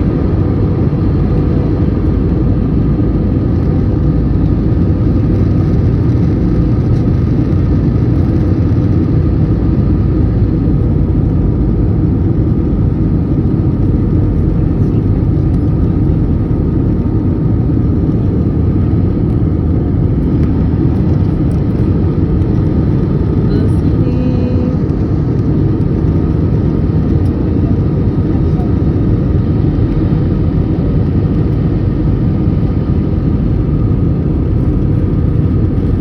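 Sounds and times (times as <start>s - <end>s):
jet engines rumbling: 0.0s - 36.0s.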